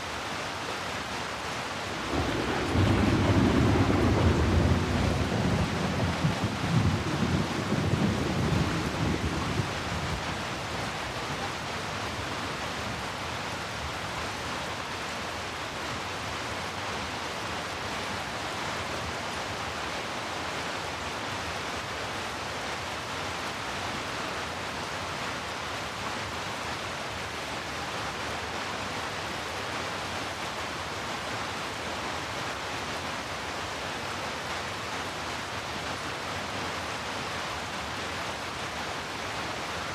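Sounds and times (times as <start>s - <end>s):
steady rain falling: 0.0s - 39.9s
low rumble of thunder: 2.0s - 10.5s.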